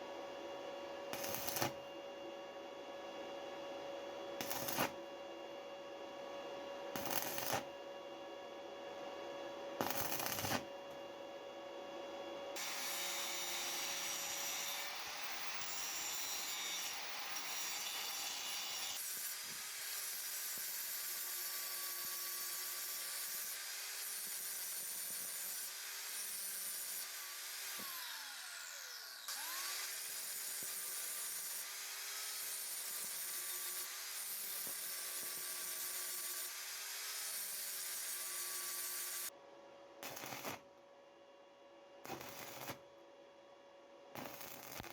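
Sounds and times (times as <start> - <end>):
power tool grinding steel: 1.2 - 1.8, 4.4 - 5.0, 12.6 - 21.8, 22.6 - 39.3, 44.2 - 44.9.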